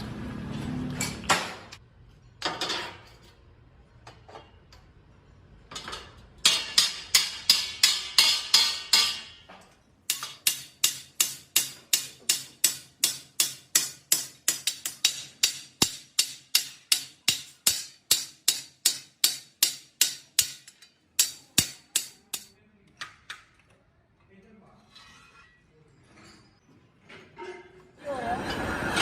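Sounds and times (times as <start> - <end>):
hammer striking steel: 6.4 - 22.5.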